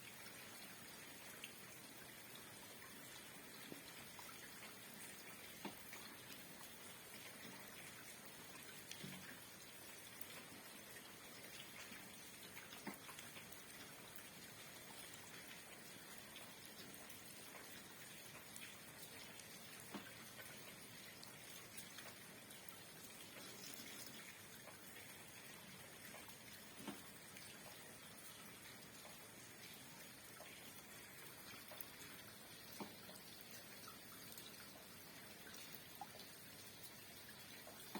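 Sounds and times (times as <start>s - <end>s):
rain hiss: 8.8s - 37.9s
water drops dripping: 25.9s - 37.9s.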